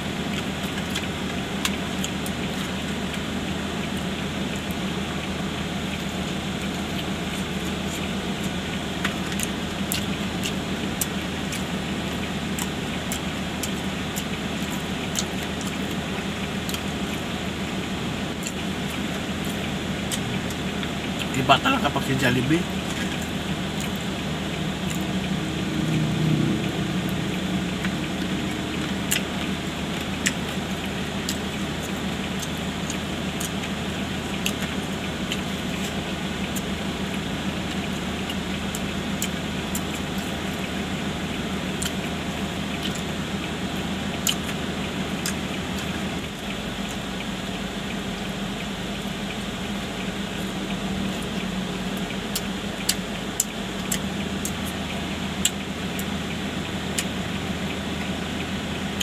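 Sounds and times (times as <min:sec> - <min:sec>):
car cabin hum: 0:00.0 - 0:59.0
person chewing food: 0:06.7 - 0:17.6, 0:22.6 - 0:47.1, 0:51.0 - 0:56.2.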